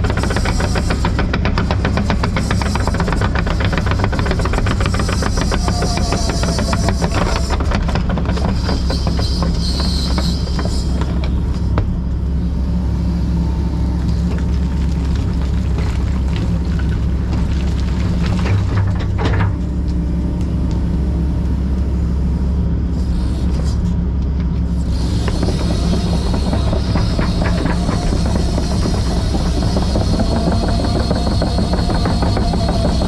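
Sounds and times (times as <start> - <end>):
machine clanks and rattles: 0.0 - 12.0, 14.3 - 20.0, 24.9 - 33.0
excavator diesel engine running: 0.0 - 33.0.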